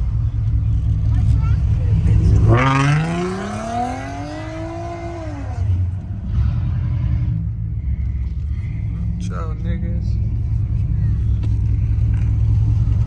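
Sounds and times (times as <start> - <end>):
vehicle engine accelerating hard: 0.0 - 13.0
steady low rumble: 4.6 - 13.0.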